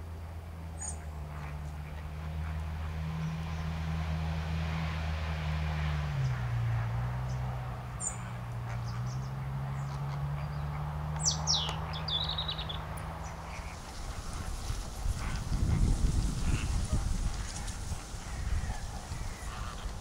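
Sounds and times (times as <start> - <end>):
wild birds calling: 5.7 - 20.0.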